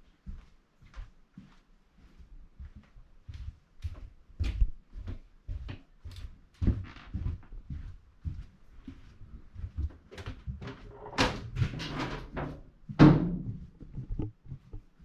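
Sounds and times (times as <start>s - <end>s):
knocks and thumps: 10.1s - 14.9s.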